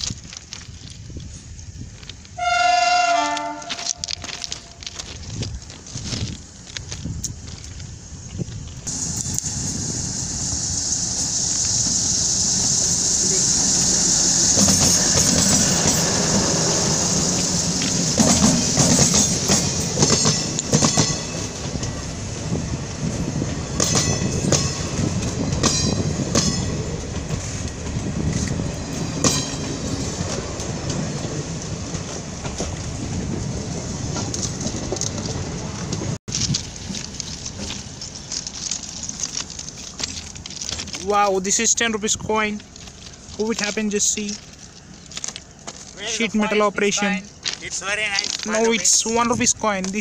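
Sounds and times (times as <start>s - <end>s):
train wheels rumbling on rail: 0.0s - 50.0s
wheels clicking on track: 0.0s - 50.0s
high hiss: 7.0s - 30.7s.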